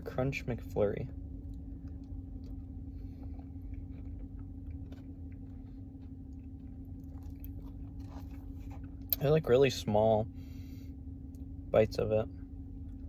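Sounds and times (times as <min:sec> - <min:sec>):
steady low hum: 0:00.0 - 0:13.0
person chewing crunchy ice cream: 0:01.2 - 0:09.2.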